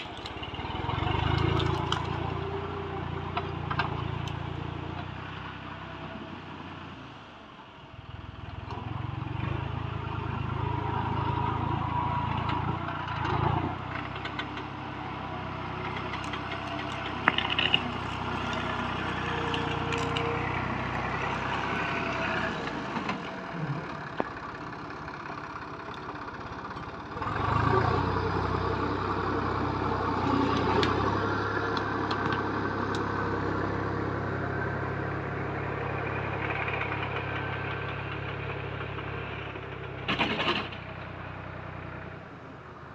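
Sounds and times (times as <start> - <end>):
tractor diesel engine running: 0.0 - 42.9
sharp knocks and cracks: 15.8 - 18.7.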